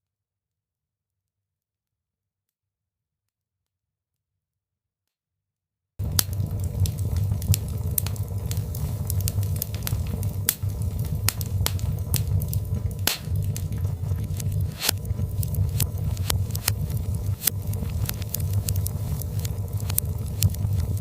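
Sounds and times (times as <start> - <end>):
fire crackling: 6.0 - 21.0
logs popping: 6.0 - 21.0
low rumble of flame: 6.0 - 21.0.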